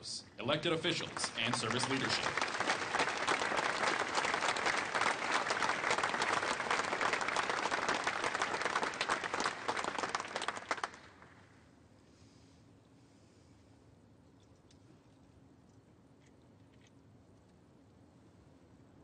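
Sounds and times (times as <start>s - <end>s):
audience applauding: 0.8s - 11.4s.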